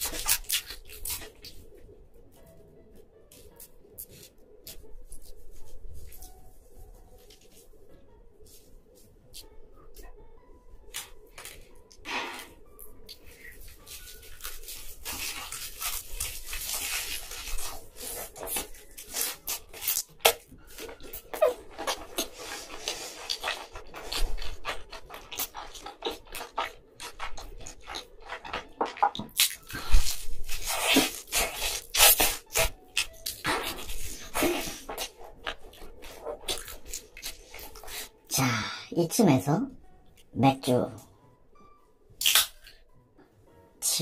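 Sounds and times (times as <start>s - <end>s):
person chewing crunchy food: 0.0s - 1.7s, 12.3s - 38.2s
person biting food: 42.2s - 42.8s.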